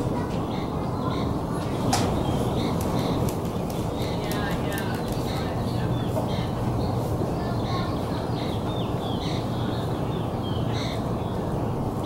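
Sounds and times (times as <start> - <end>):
birds calling: 0.1 - 12.0.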